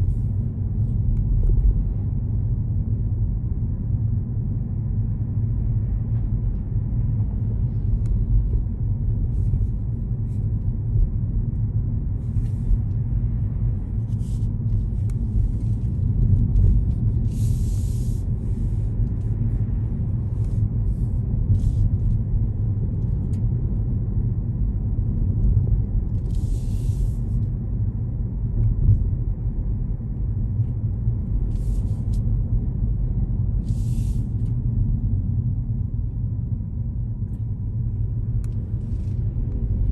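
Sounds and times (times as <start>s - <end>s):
car road noise from inside: 0.0s - 39.9s.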